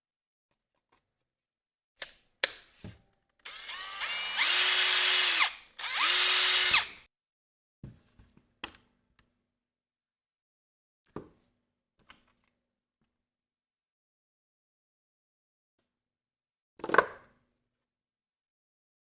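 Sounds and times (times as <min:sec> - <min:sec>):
cordless drill motor whining: 0:03.5 - 0:07.0.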